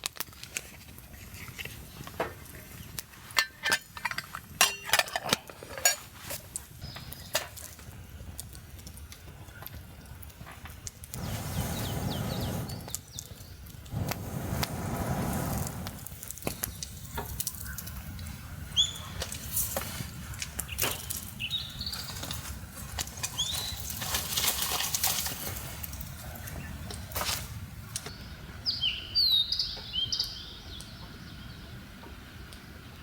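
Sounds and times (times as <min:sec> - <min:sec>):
small bird chirping: 0:11.2 - 0:13.7, 0:16.5 - 0:19.3
rustling: 0:19.2 - 0:28.0.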